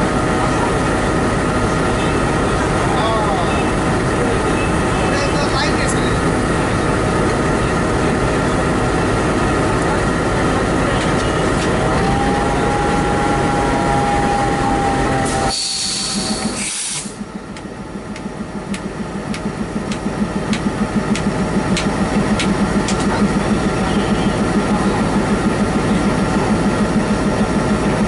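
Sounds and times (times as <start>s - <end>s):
locomotive running: 0.0s - 28.0s
air hiss: 15.5s - 17.2s
rhythmic pulsing with clicks: 17.5s - 23.5s.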